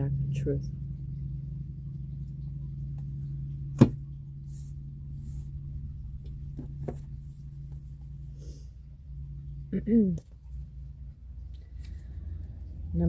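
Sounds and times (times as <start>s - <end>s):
steady low hum: 0.0s - 13.0s
soft rustling of cards: 11.4s - 12.8s.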